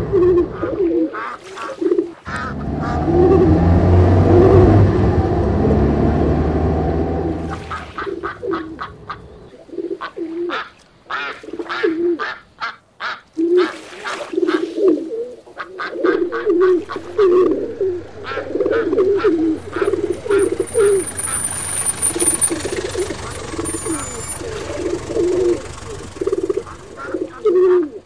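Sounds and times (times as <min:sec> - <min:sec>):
pigeons cooing: 0:00.0 - 0:05.6, 0:06.9 - 0:10.7, 0:14.4 - 0:28.0
small birds chirping: 0:16.0 - 0:27.6.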